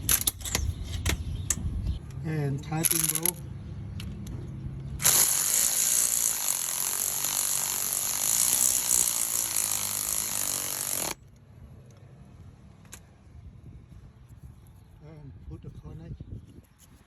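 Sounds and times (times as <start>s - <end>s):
power tool driving a bolt: 5.0s - 11.2s.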